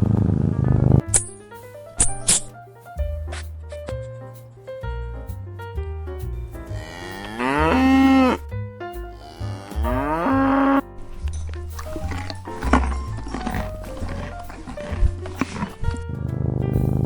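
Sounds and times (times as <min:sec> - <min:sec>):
light background music: 0:00.1 - 0:17.0
cow mooing: 0:06.8 - 0:08.4, 0:09.2 - 0:10.8.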